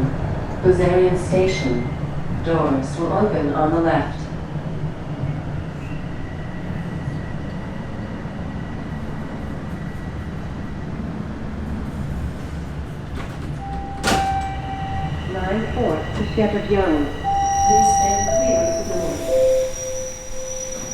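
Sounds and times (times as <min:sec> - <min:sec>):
subway train rumbling: 0:00.0 - 0:20.9
steady tone: 0:14.0 - 0:20.9.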